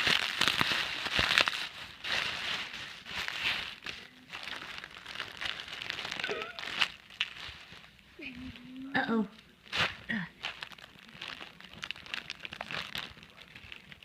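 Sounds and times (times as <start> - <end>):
bubble wrap crinkling: 0.0 - 14.0
wavering squeak: 6.2 - 6.7.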